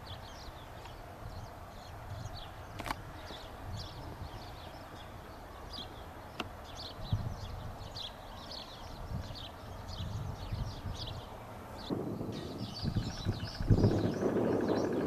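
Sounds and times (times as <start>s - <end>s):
birds chirping: 0.0s - 15.0s
wind rumble on microphone: 0.0s - 15.0s.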